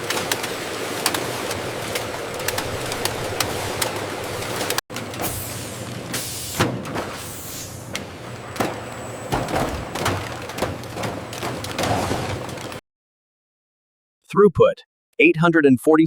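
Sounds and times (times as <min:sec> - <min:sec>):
machinery clicks and clanks: 0:00.0 - 0:12.8
machinery humming: 0:00.0 - 0:12.8.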